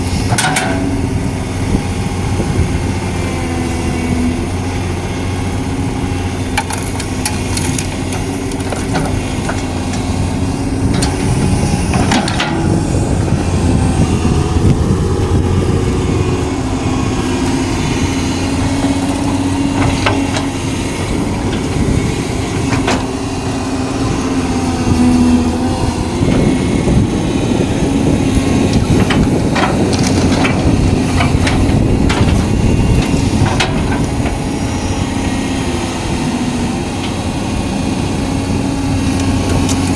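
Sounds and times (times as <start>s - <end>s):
excavator diesel engine running: 0.0s - 39.9s
knocks and clanks: 10.9s - 12.8s, 18.6s - 23.2s, 28.6s - 34.4s.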